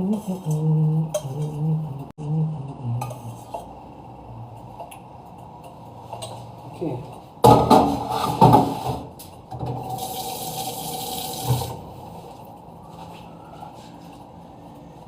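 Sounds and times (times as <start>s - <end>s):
kitchen tap running: 9.9s - 11.8s.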